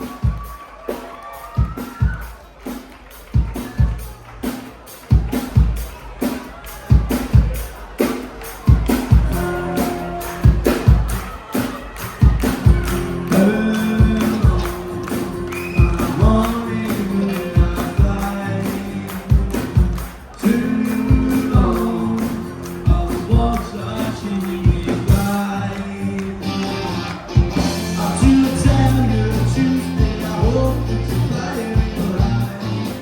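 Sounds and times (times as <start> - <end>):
drum beat: 0.0 - 33.0
rock band playing live: 0.0 - 33.0
person singing: 9.2 - 33.0.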